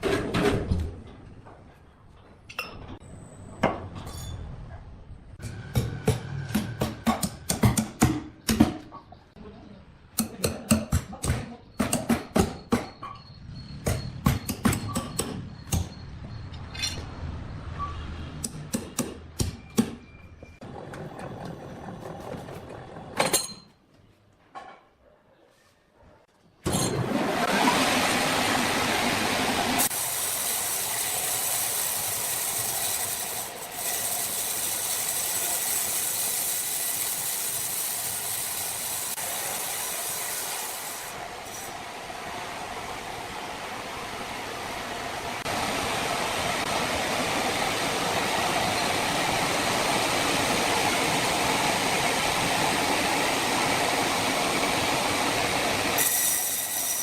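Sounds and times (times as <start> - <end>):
sawmill machinery hissing: 26.9 - 57.0.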